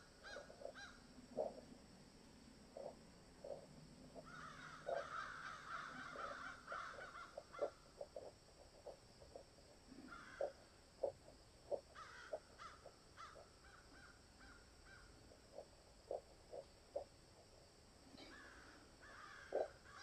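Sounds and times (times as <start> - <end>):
crows cawing: 0.2 - 1.0, 4.2 - 8.3, 10.0 - 10.6, 11.8 - 15.1, 18.2 - 20.0.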